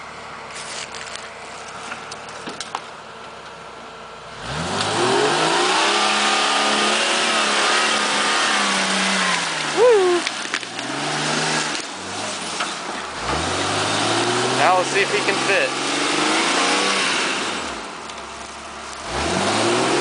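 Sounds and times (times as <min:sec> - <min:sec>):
car engine revving: 0:04.2 - 0:20.0.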